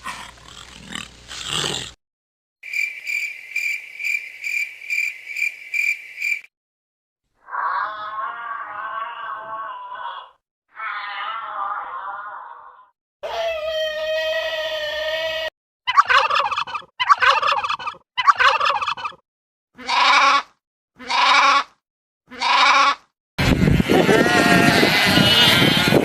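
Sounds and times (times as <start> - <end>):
animal calls: 15.9 - 19.2
turkey gobbling: 15.9 - 19.2.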